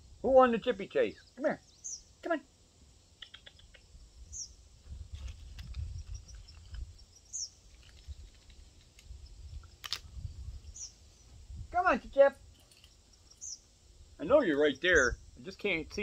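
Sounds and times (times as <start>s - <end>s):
bird chirping: 0.5s - 2.3s, 3.1s - 4.6s, 5.7s - 8.3s, 9.2s - 11.4s, 12.1s - 16.0s.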